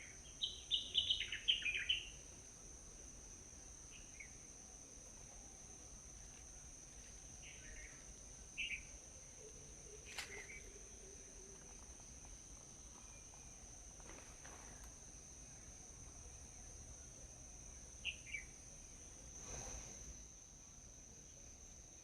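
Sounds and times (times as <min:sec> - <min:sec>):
bird chirps: 0:00.0 - 0:02.2, 0:08.6 - 0:08.9.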